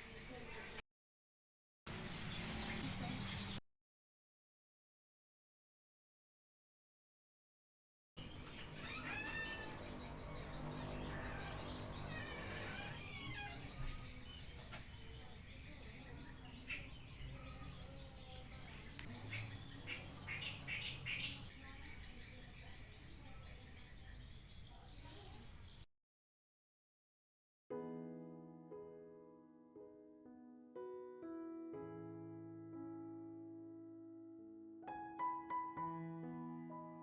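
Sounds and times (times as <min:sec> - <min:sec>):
small birds chirping: 0:01.9 - 0:03.6, 0:08.2 - 0:25.9.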